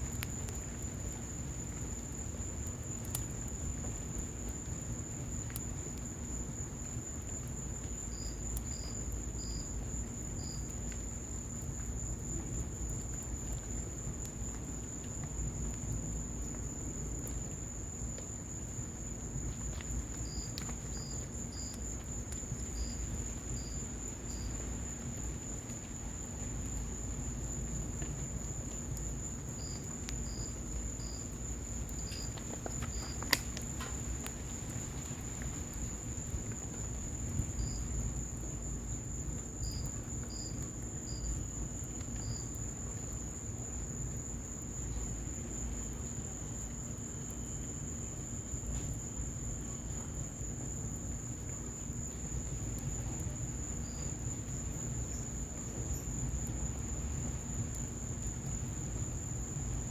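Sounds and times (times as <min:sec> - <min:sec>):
cricket chirps: 0:00.0 - 0:59.9
cricket trilling: 0:00.0 - 0:59.9
fire crackles: 0:00.0 - 0:59.9
fire rumbling: 0:11.1 - 0:39.3.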